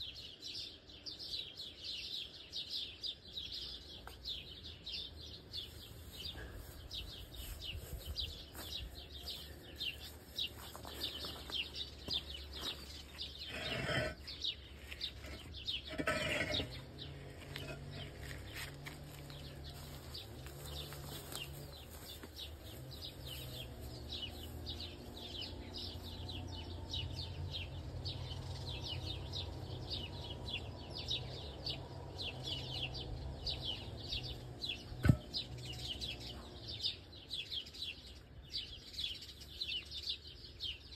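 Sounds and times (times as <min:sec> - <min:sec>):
small birds chirping: 0:00.0 - 0:40.9
scraping rushes: 0:12.6 - 0:21.5.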